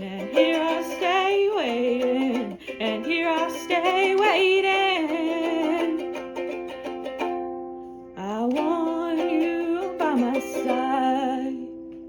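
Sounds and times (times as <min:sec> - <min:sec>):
woman singing: 0:00.0 - 0:07.2, 0:08.2 - 0:12.0.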